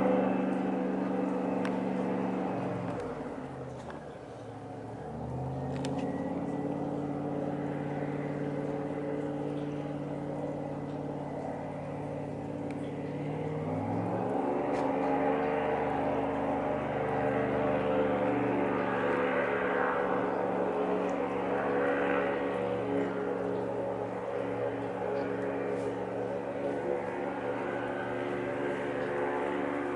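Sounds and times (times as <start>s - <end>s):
airboat engine and propeller: 0.0s - 29.9s.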